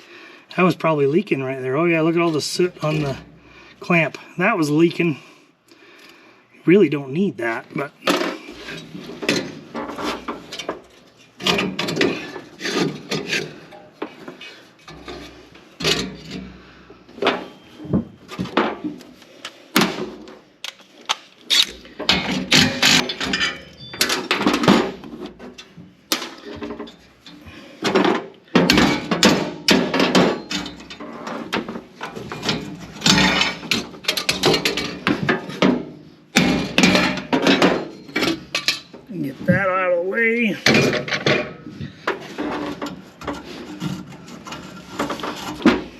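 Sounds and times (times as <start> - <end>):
hand tools and metal parts clinking: 8.0 - 16.6, 20.6 - 39.7.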